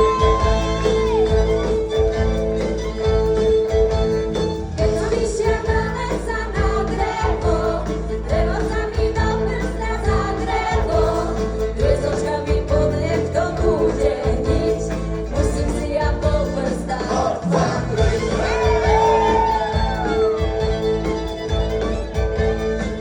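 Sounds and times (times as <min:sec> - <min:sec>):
folk-rock band playing live: 0:00.0 - 0:23.0
voices singing together: 0:04.8 - 0:19.8.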